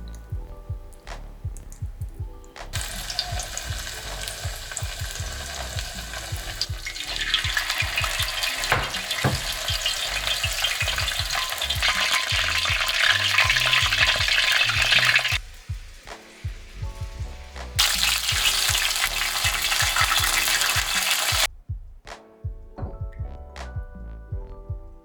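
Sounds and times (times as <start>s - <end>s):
meat sizzling in hot oil: 2.8s - 21.5s.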